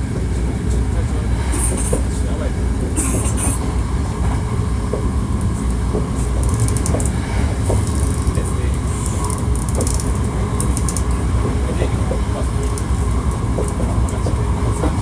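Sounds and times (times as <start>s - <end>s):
electric train rumbling: 0.0s - 15.0s
faint clicks: 4.9s - 8.4s, 9.0s - 11.2s, 12.6s - 14.2s.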